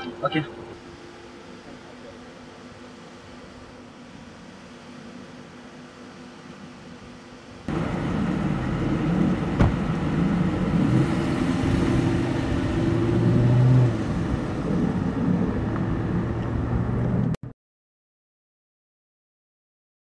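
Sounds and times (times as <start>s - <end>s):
car engine revving: 7.7s - 17.4s.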